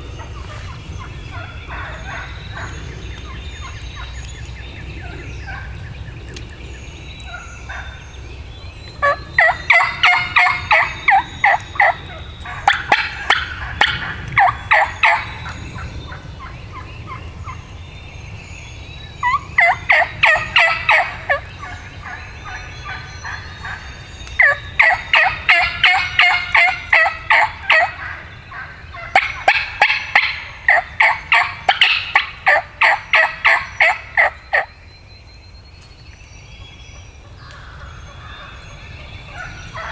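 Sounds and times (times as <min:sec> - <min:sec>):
wild turkey yelping: 0:00.2 - 0:04.2, 0:09.0 - 0:17.6, 0:19.2 - 0:34.8.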